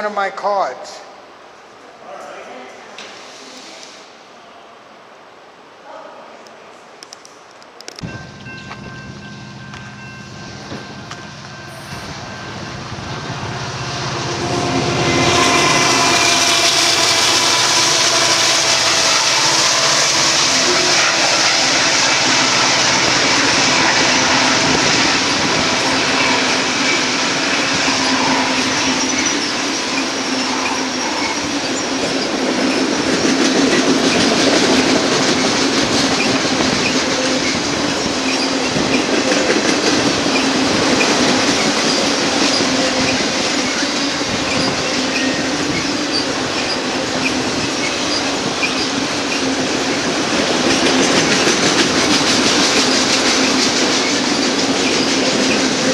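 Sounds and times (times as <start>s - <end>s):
train wheels clacking over rail joints: 14.7s - 55.9s.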